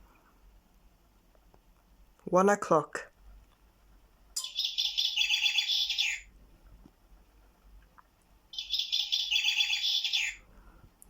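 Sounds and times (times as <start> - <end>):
recorded birdsong from clock speaker: 4.4 - 6.3, 8.5 - 10.5.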